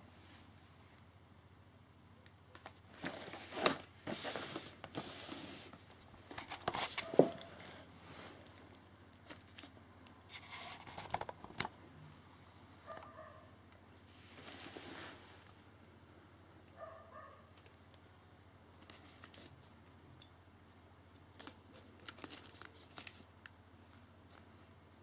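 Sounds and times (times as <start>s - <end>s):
packaging rustling and crinkling: 2.6s - 7.8s, 21.4s - 24.5s.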